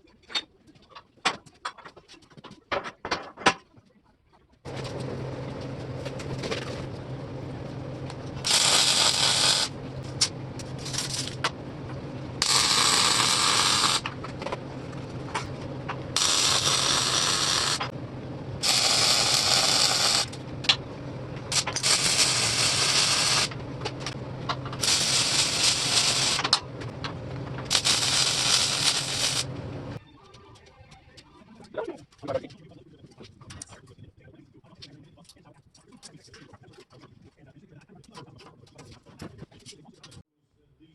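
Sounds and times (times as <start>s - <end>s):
low machine hum: 4.7s - 30.0s
harsh crackling hiss bursts: 8.4s - 9.7s, 12.4s - 14.1s, 16.2s - 17.8s, 18.6s - 20.3s, 21.5s - 23.5s, 24.8s - 26.5s, 27.7s - 29.5s.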